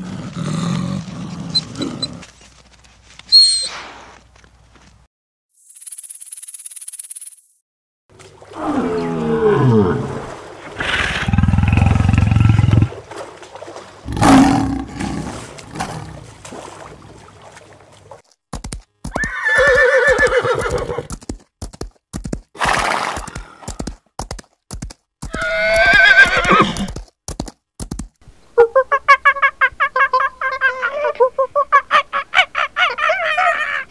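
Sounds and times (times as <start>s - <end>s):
horse hooves clattering: 18.2s - 28.2s
horse neighing: 19.1s - 21.1s, 25.3s - 26.9s.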